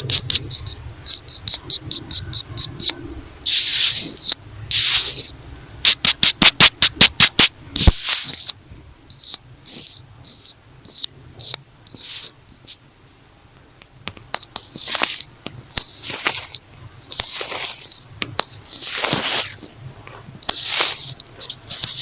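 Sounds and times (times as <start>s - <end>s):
notebook cover scratching: 0.0s - 2.9s, 3.5s - 5.3s, 5.9s - 12.8s, 14.4s - 22.0s.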